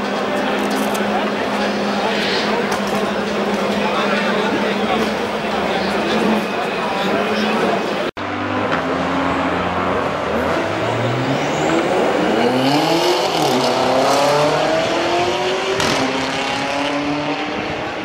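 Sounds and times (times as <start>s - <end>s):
car engine accelerating: 8.2s - 18.0s.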